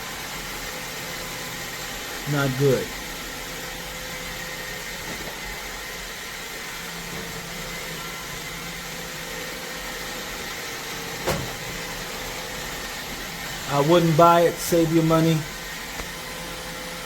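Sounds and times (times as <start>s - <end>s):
robot vacuum whirring: 0.0s - 17.0s.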